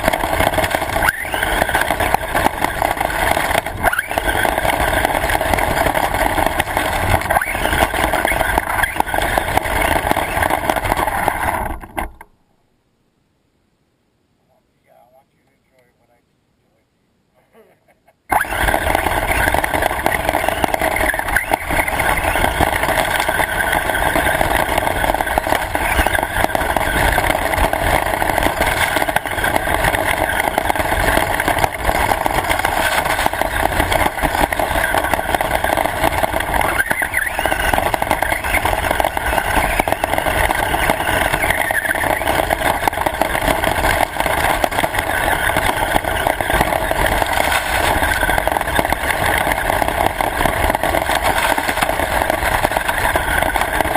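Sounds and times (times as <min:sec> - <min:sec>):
remote control car rumbling: 0:00.0 - 0:12.3, 0:18.3 - 0:53.9.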